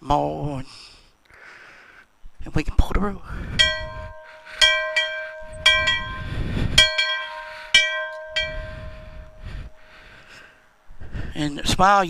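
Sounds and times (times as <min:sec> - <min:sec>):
small church bell ringing: 0:03.6 - 0:10.4.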